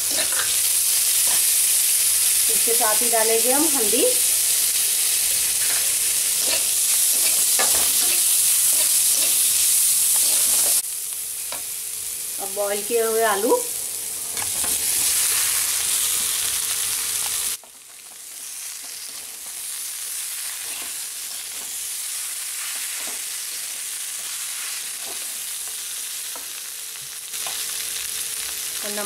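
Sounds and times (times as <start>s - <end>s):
potatoes sizzling in hot oil: 0.0s - 29.0s.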